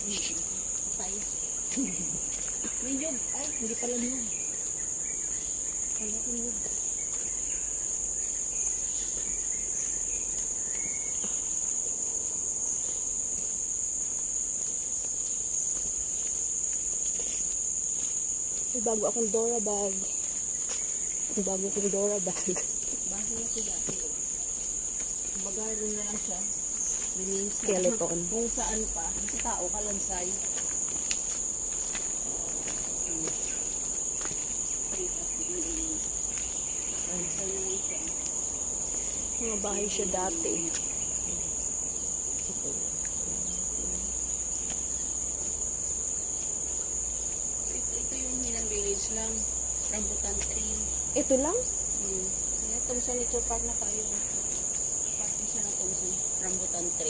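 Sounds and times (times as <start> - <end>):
faint chirps: 0.0 - 13.1
insect chorus drone: 0.0 - 57.0.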